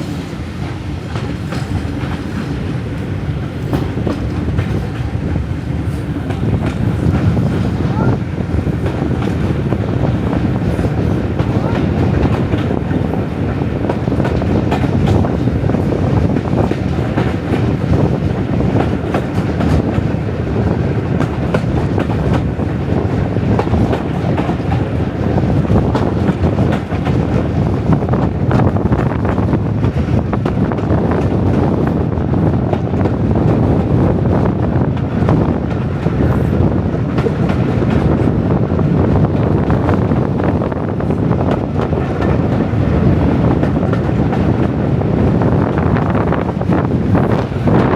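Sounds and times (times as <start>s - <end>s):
train rumbling: 0.0s - 47.9s.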